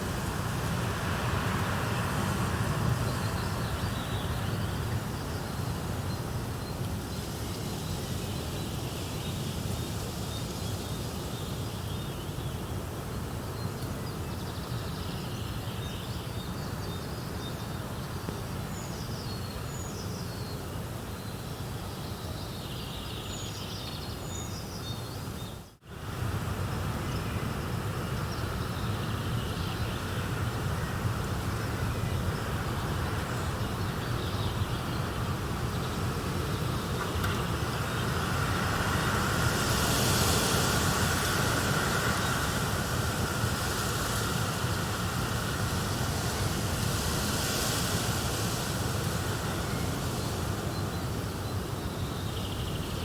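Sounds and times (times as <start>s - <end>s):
small birds chirping: 0.0s - 12.6s, 28.1s - 53.0s.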